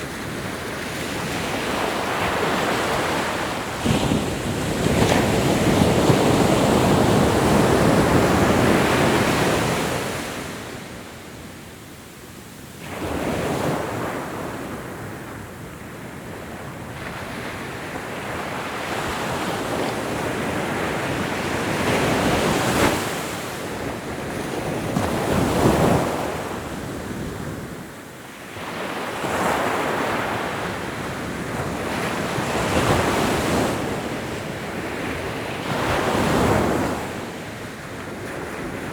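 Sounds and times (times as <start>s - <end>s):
ocean waves breaking on shore: 0.0s - 11.6s.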